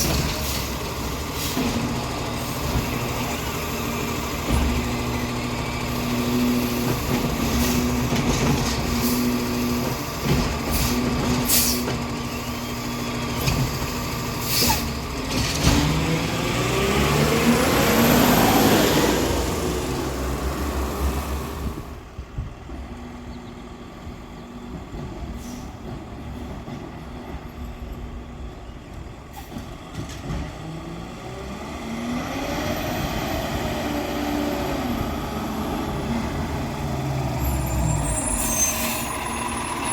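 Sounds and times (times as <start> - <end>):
garbage truck diesel engine: 0.0 - 39.9
knocks and clanks: 4.4 - 5.1, 6.8 - 9.0, 9.8 - 12.0, 15.2 - 16.2, 29.6 - 30.6.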